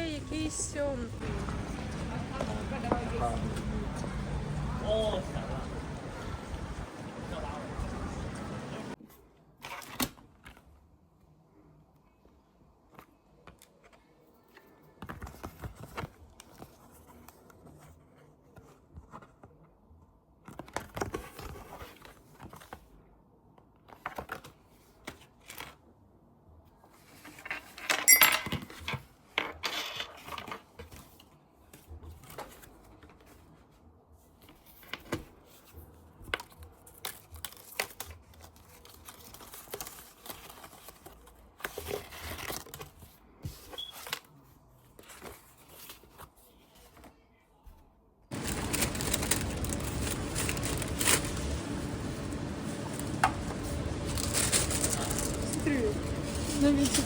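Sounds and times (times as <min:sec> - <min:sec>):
objects rustling and clattering: 0:12.8 - 0:19.7, 0:26.8 - 0:47.1, 0:48.3 - 0:57.0
crinkling rustle: 0:34.4 - 0:43.1, 0:48.3 - 0:57.0.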